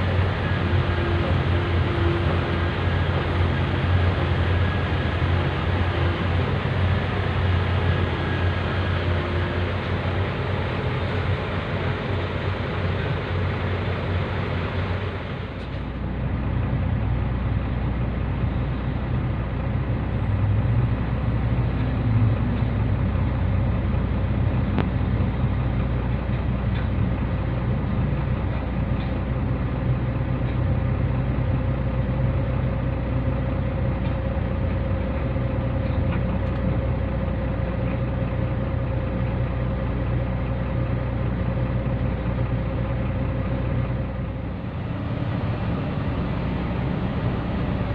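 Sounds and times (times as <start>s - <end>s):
diesel truck engine droning: 0.0s - 47.9s.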